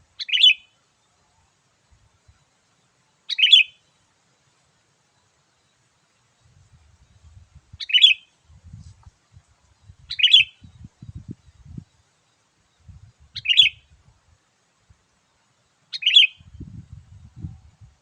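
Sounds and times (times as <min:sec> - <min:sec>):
bulbul calling: 0:00.1 - 0:00.8, 0:03.3 - 0:03.9, 0:07.7 - 0:08.4, 0:09.8 - 0:11.9, 0:12.8 - 0:14.0, 0:15.9 - 0:16.6.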